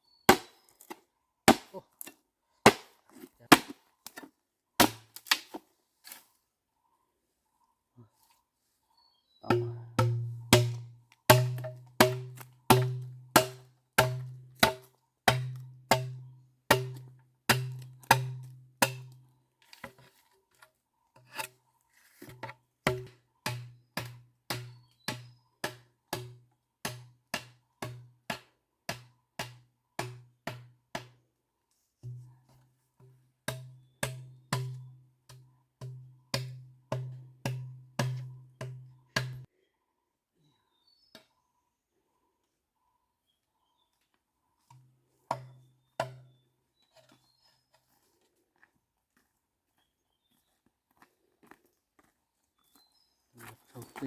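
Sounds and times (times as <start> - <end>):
heavy blows on wooden block: 9.5 - 19.1.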